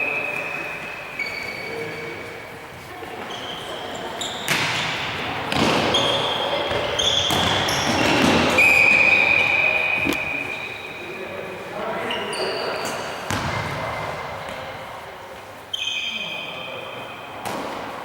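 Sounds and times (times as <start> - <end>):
shoe squeaks on floor: 0.0 - 5.0, 5.7 - 11.2, 11.9 - 13.8, 15.7 - 16.8
players' voices: 0.0 - 18.0.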